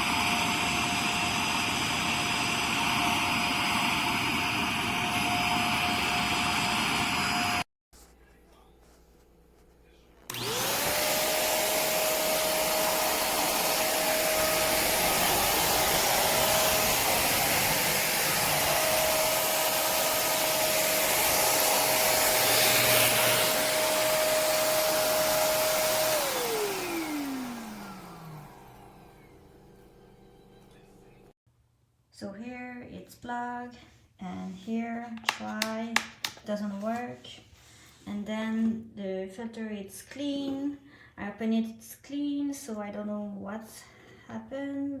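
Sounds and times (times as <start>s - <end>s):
vacuum cleaner motor whine: 0.0s - 7.6s, 10.3s - 31.3s.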